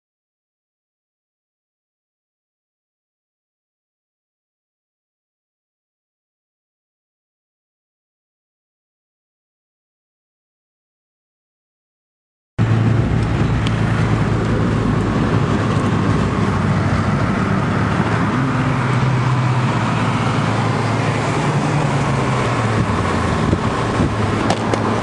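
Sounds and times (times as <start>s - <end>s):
car engine running: 12.6s - 25.0s
road and tyre noise: 12.6s - 25.0s.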